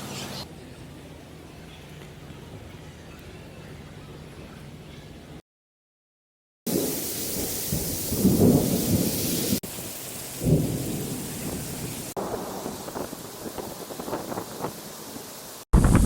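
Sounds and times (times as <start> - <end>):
thunder crack: 6.7 - 9.6, 10.4 - 14.8, 15.7 - 16.0
rolling thunder: 6.7 - 14.9, 15.8 - 16.0
heavy rain: 6.7 - 16.0.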